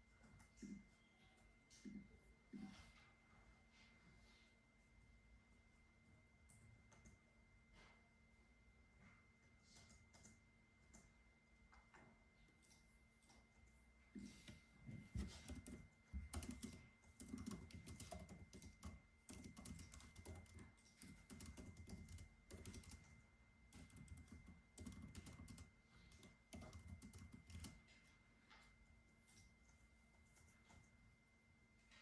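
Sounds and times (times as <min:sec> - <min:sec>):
typing on a computer keyboard: 0:15.2 - 0:28.0.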